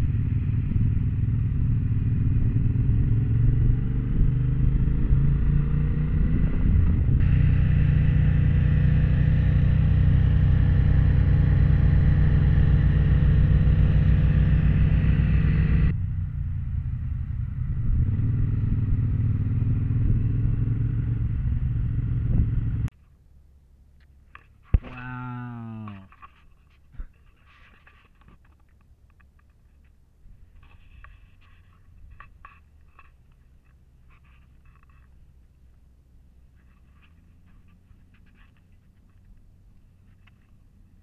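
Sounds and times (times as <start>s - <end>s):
motorcycle engine running: 0.0s - 22.9s
wind and road noise: 0.0s - 41.0s.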